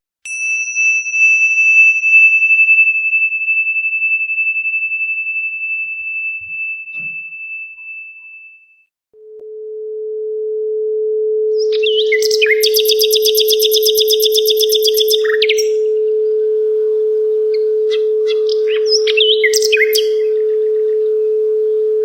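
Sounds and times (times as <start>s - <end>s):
high-pitched metal chime: 0.3s - 8.8s
pure sine tone: 0.3s - 22.0s.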